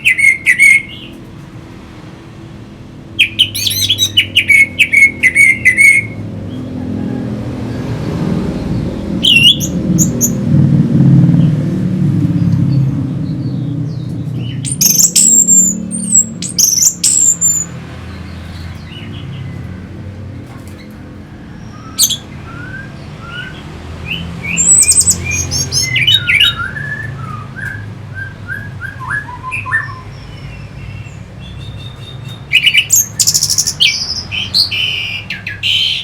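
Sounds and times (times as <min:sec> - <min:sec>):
thrush singing: 0:03.2 - 0:11.6, 0:21.6 - 0:36.0.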